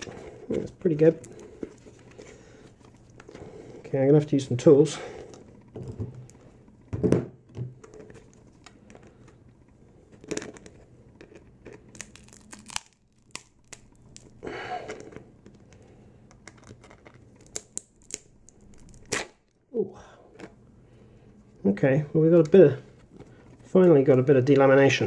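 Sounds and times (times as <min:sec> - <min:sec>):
plastic tearing: 0:10.1 - 0:15.2, 0:16.4 - 0:19.6.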